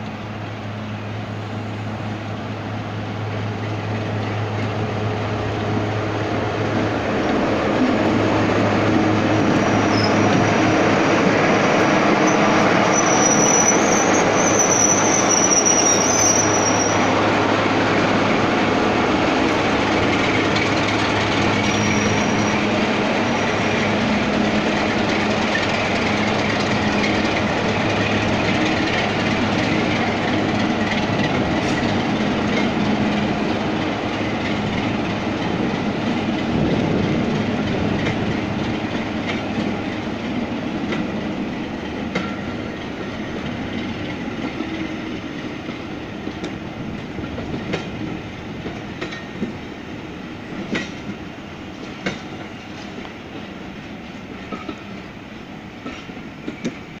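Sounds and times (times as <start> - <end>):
train rumble: 0.0 - 57.0
train wheels clicking over joints: 17.7 - 55.1.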